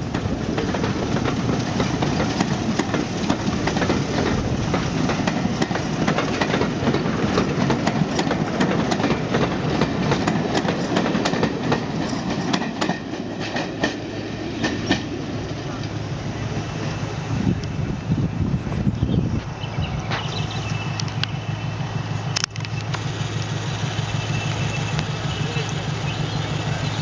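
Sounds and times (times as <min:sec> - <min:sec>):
train wheels clicking over rail joints: 0:00.0 - 0:18.1
train rumble: 0:00.0 - 0:27.0.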